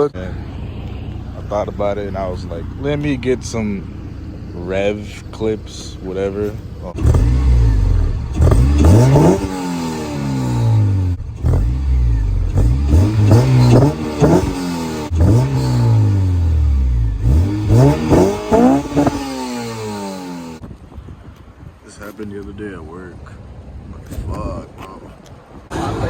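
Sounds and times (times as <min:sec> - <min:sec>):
car engine revving: 0:00.0 - 0:20.6.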